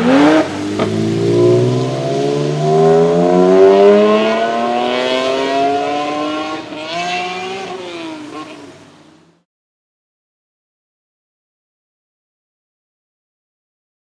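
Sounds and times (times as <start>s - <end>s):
car engine accelerating: 0.0s - 9.3s.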